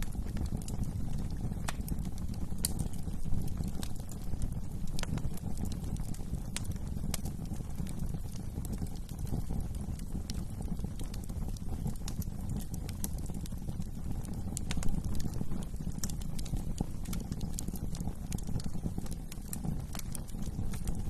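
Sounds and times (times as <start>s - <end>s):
low rumble of flames: 0.0s - 21.0s
wood fire crackling: 0.0s - 21.0s.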